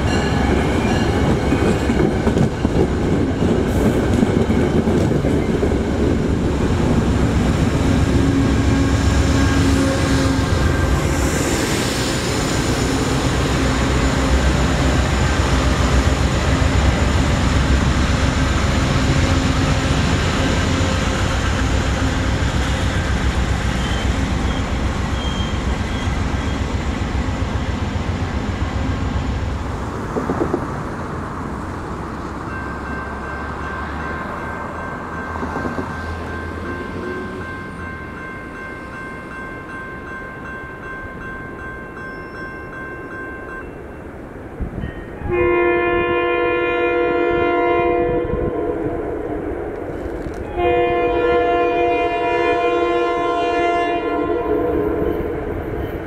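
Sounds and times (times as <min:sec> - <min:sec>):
crossing bell ringing: 0:00.0 - 0:05.8, 0:08.4 - 0:11.2, 0:32.3 - 0:45.5
diesel locomotive engine rumble: 0:00.0 - 0:41.7, 0:43.6 - 0:56.0
locomotive air horn chord: 0:45.2 - 0:49.5, 0:50.5 - 0:55.5.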